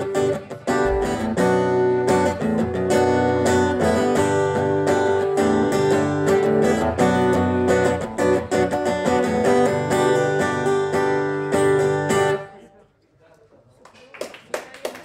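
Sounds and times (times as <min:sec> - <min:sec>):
acoustic guitar strumming: 0:00.0 - 0:12.5.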